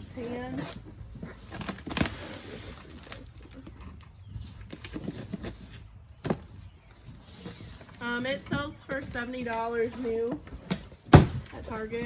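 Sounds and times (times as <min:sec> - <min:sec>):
packaging rustling and crackling: 0:00.0 - 0:08.0.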